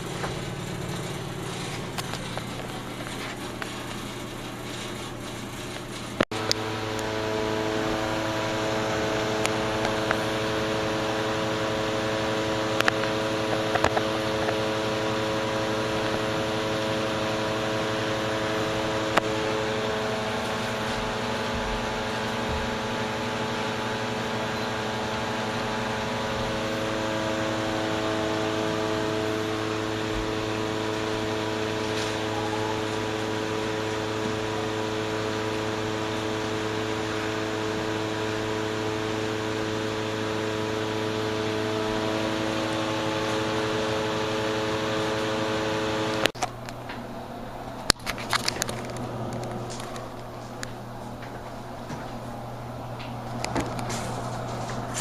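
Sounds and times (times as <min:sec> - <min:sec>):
exhaust fan running: 0:00.0 - 0:55.0.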